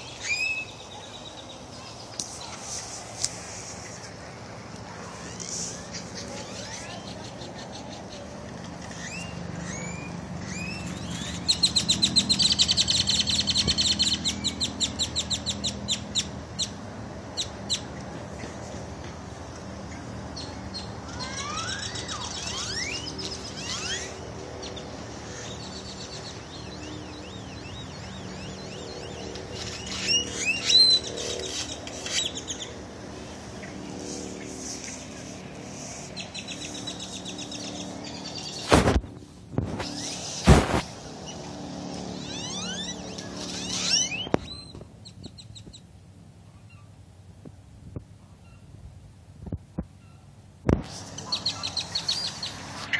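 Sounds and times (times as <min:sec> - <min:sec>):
bird chirping: 0:00.0 - 0:02.6, 0:05.1 - 0:16.8, 0:19.9 - 0:38.8, 0:41.2 - 0:45.9, 0:51.1 - 0:52.9.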